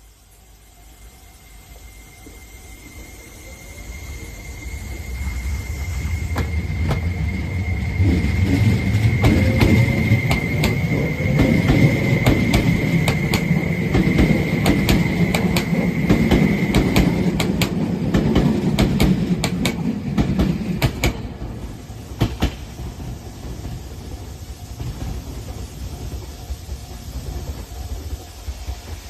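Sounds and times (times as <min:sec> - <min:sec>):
steady high whine: 0:00.0 - 0:29.0
train running rumble: 0:00.0 - 0:29.0
wheels clacking over rail joints: 0:08.4 - 0:21.4.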